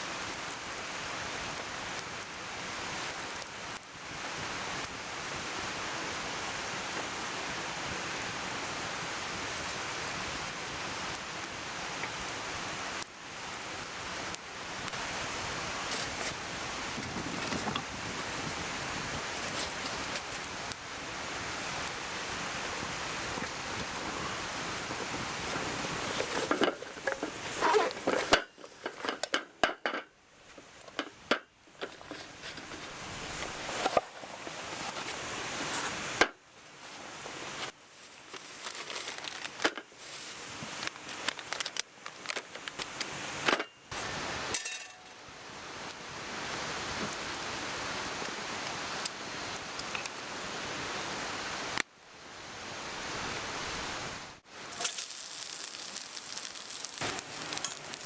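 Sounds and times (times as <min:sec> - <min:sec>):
metal cookware clinking: 0:44.5 - 0:45.2, 0:54.6 - 0:56.7.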